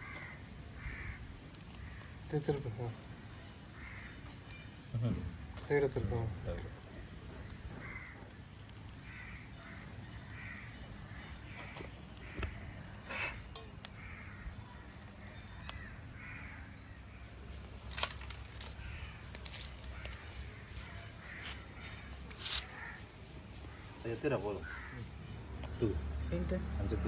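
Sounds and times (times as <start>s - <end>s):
crows cawing: 0.0s - 4.6s, 5.7s - 25.9s.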